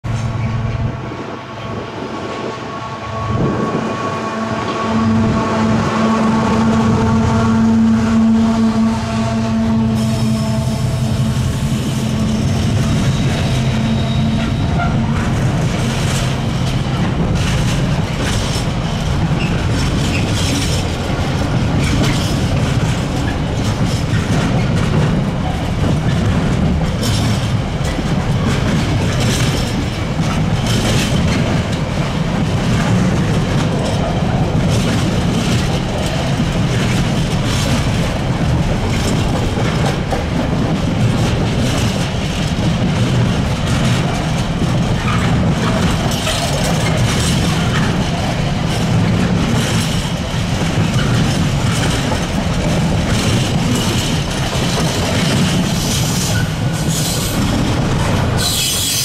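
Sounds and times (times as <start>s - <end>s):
diesel locomotive engine drone: 0.0s - 59.0s
wheels clickety-clack over track: 0.0s - 59.0s
wagons rumbling by: 0.1s - 58.9s.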